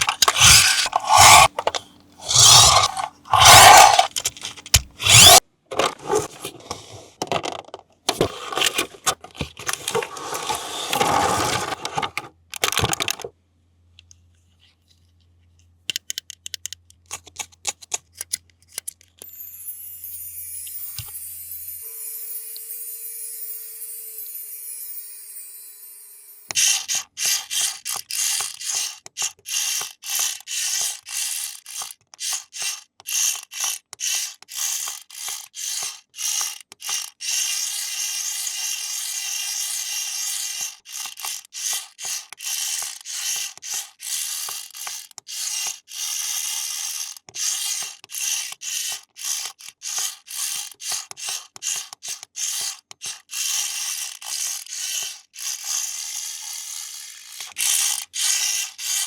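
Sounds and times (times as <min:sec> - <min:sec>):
toy mechanism grinding: 0:00.0 - 0:13.3, 0:17.1 - 0:59.0.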